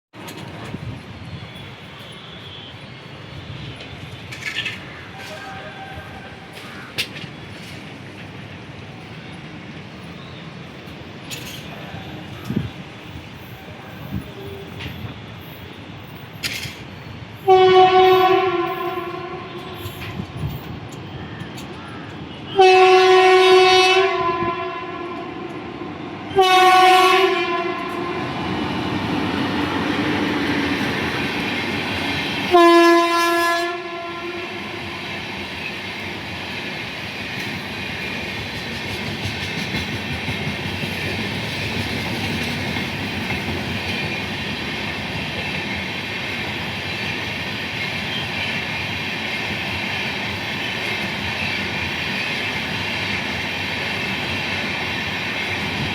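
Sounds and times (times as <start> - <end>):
train wheels rumbling on rails: 0.1 - 55.9
train horn blasts: 5.2 - 6.4, 17.4 - 20.5, 22.3 - 28.5, 32.4 - 35.3.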